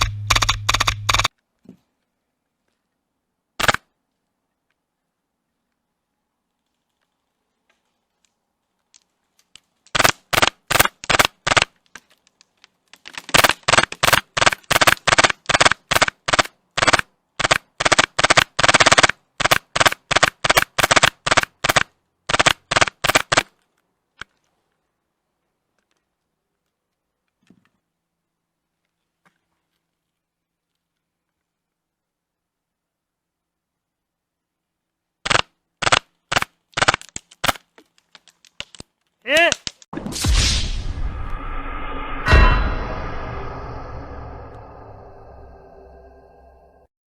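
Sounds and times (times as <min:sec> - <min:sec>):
airsoft gun firing rapid shots: 0:03.6 - 0:03.8, 0:09.9 - 0:11.7, 0:13.3 - 0:23.5, 0:35.2 - 0:37.6.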